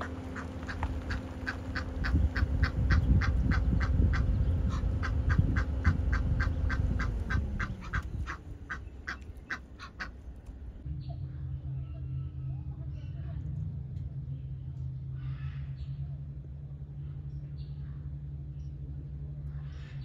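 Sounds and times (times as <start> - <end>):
bird calling sharp notes: 0.0 - 10.5
low rumble: 0.0 - 20.0.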